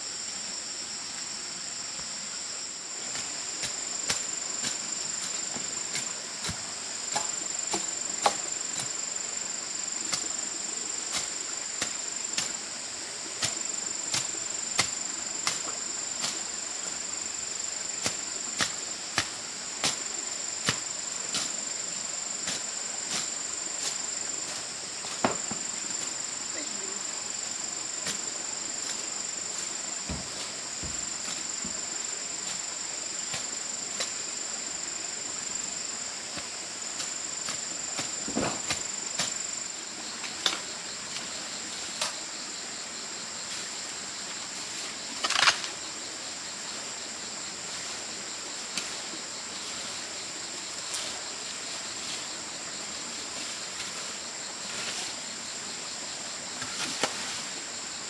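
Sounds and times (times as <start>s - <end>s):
crickets droning: 0.0s - 58.0s
knocks and rustles: 25.1s - 25.7s, 30.0s - 31.8s, 38.0s - 39.3s.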